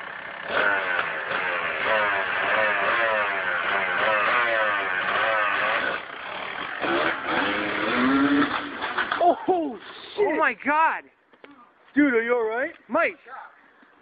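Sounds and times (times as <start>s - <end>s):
dirt bike engine revving: 0.0s - 9.2s.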